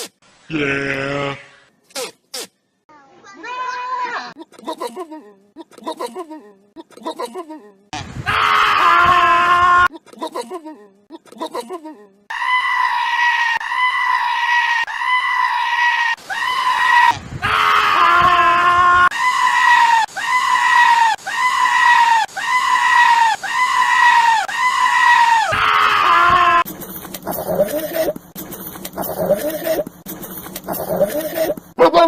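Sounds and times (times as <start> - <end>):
goat screaming: 12.3 - 26.7.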